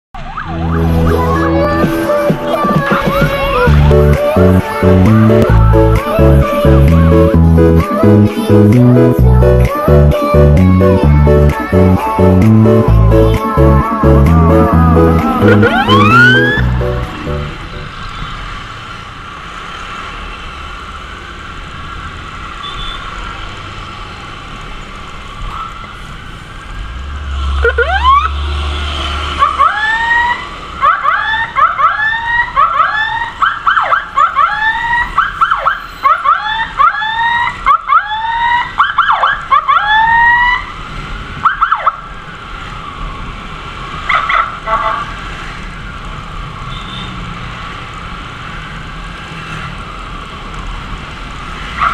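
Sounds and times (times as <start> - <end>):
electronic siren whooping: 0.2 - 5.4, 12.1 - 17.9, 27.4 - 28.4, 29.4 - 40.8.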